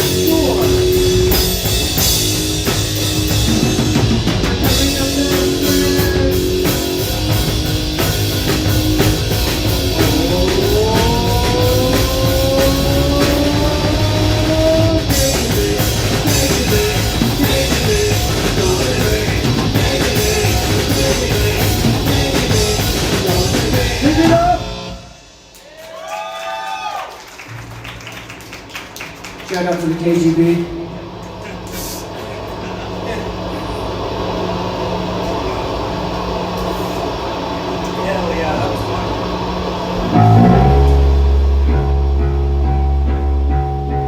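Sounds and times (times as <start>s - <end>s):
live rock band playing: 0.0s - 25.5s, 40.0s - 44.0s.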